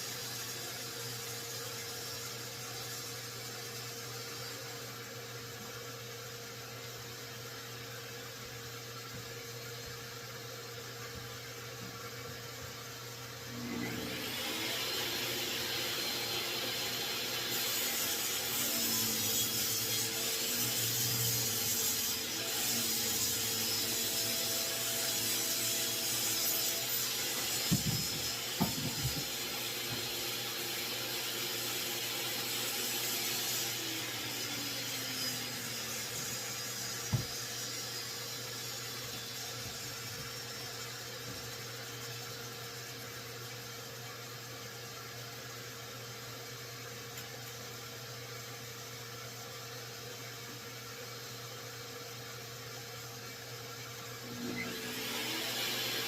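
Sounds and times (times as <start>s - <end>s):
table saw cutting wood: 13.5s - 41.6s, 54.2s - 56.0s.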